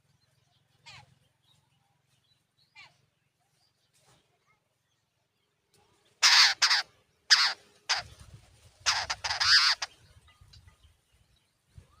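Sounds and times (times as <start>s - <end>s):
birds giving harsh raspy calls: 6.2s - 10.8s.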